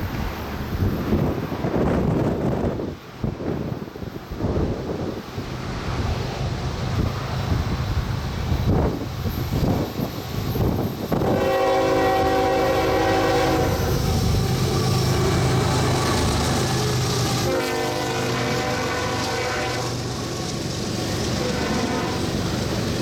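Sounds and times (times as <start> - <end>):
passing train rumble: 0.0 - 23.0
locomotive horn blasts: 11.2 - 14.2, 17.4 - 20.0, 21.4 - 22.4.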